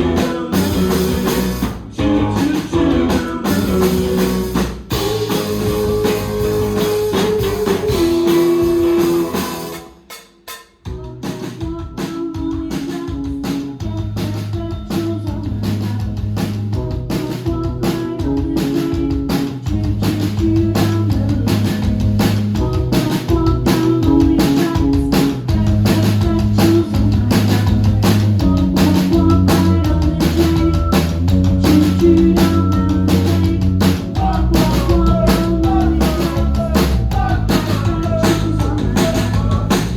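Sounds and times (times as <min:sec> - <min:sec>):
electric guitars: 0:00.0 - 0:09.8
bass guitar: 0:00.0 - 0:10.1, 0:10.9 - 0:39.9
drum kit: 0:00.0 - 0:39.9.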